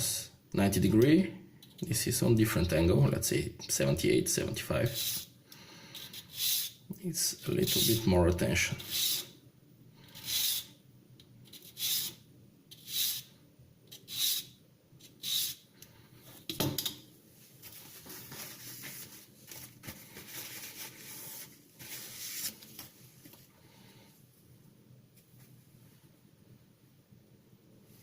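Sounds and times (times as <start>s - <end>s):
sandpaper rubbing on knife teeth: 6.0s - 6.8s, 10.2s - 10.7s, 11.5s - 13.3s, 14.0s - 15.6s.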